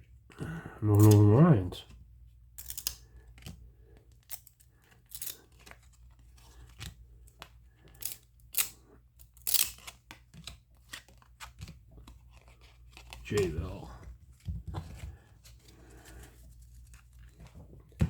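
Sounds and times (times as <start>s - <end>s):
cards snapping together: 6.7s - 13.6s
wrapper tearing and crinkling: 9.3s - 10.1s.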